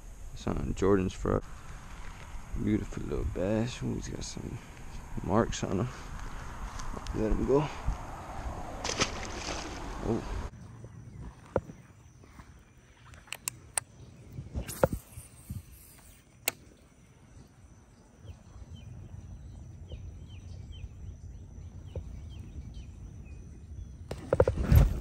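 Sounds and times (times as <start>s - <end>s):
low outdoor rumble: 0.0s - 11.5s.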